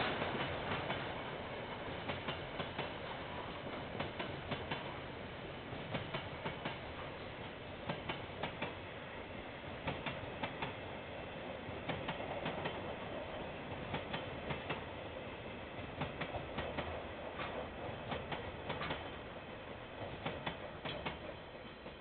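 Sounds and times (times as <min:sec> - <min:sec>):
train wheels clicking over rail joint: 0:00.0 - 0:04.9, 0:05.8 - 0:07.1, 0:07.8 - 0:08.8, 0:09.8 - 0:10.8, 0:11.8 - 0:14.9, 0:15.8 - 0:19.2, 0:20.0 - 0:22.0
train rumble: 0:00.0 - 0:22.0.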